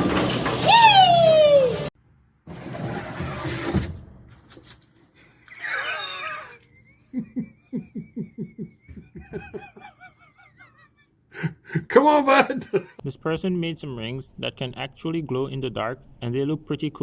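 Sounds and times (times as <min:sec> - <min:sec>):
person crying out: 0:05.5 - 0:06.7
person laughing hard: 0:05.5 - 0:13.0.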